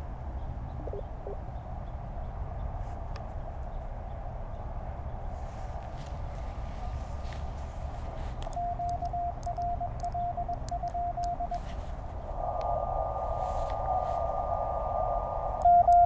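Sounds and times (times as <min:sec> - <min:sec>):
faint clicks: 0:05.6 - 0:16.0
radio receiver hiss: 0:08.0 - 0:16.0
morse code tone: 0:08.5 - 0:11.8, 0:15.6 - 0:16.0
steady high whistle: 0:08.5 - 0:16.0.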